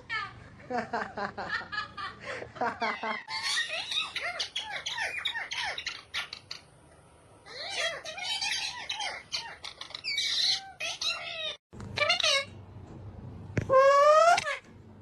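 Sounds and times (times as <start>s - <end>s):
parrot squawking and chattering: 2.9s - 6.8s, 7.4s - 12.6s, 13.7s - 14.7s.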